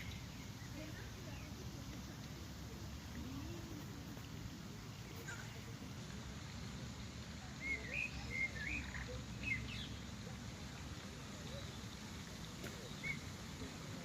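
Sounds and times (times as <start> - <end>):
songbird warbling: 7.6 - 10.2, 11.2 - 13.6.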